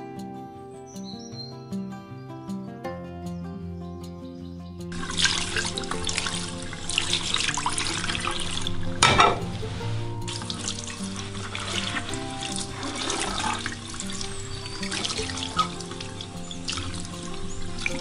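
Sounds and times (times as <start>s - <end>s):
background music: 0.0s - 18.0s
tap water splashing into basin: 4.9s - 9.6s, 10.2s - 18.0s.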